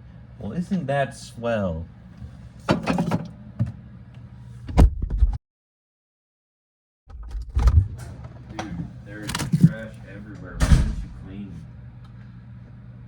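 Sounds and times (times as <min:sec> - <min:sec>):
refrigerator contents knocking: 0:08.6 - 0:10.0
heavy thuds: 0:10.5 - 0:11.2.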